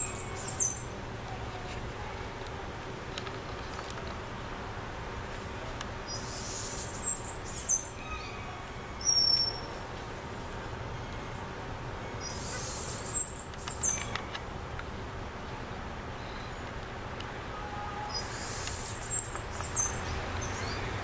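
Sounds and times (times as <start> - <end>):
small birds chirping: 0.0 - 1.7, 6.0 - 11.5, 12.1 - 14.4, 18.1 - 21.0.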